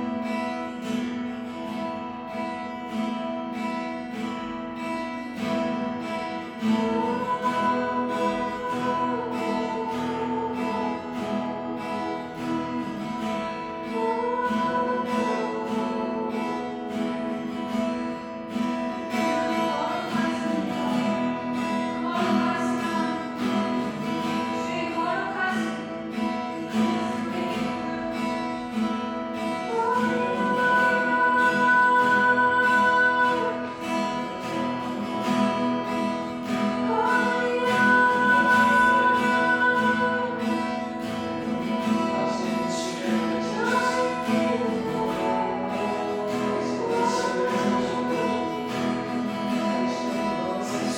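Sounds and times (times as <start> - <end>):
strummed acoustic guitar: 0.0 - 50.9
person singing slow melody: 6.0 - 18.0, 18.8 - 50.9.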